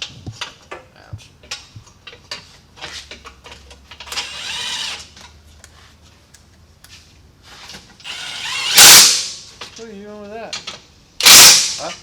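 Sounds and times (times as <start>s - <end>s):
small power tool whirring: 4.1s - 5.1s, 8.0s - 9.3s.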